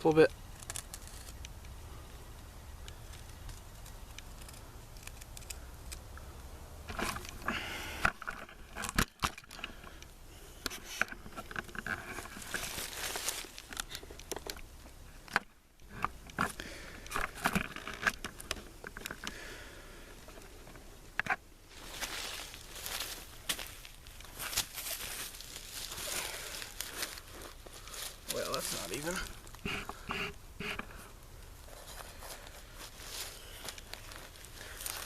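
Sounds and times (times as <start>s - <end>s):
knife shaving wood: 0.6s - 1.4s, 3.0s - 6.0s.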